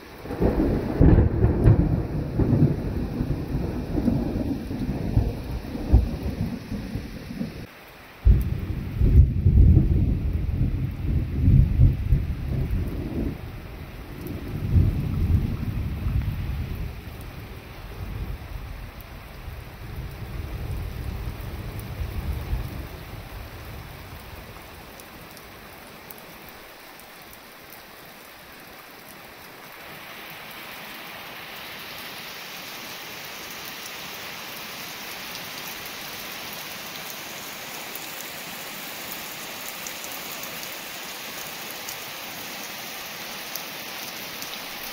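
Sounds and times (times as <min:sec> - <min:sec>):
steady rain: 0:00.0 - 0:44.9
thunder rolling: 0:00.2 - 0:23.5.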